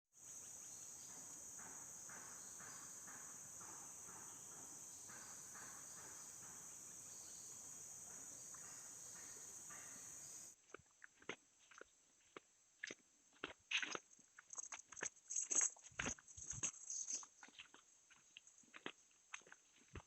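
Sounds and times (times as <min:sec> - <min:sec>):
high-pitched insect drone: 0:00.2 - 0:10.5
soft pulsed insect calls: 0:00.2 - 0:10.6.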